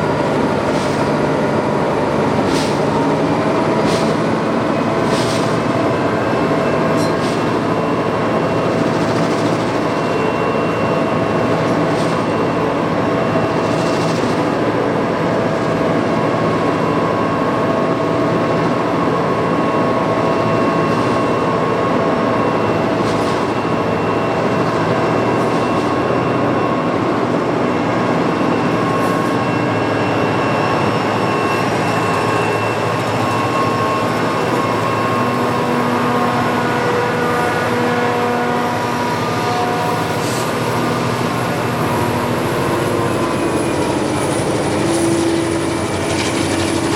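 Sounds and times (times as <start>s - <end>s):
locomotive engine drone: 0.0s - 46.9s
whining tones: 0.0s - 46.9s.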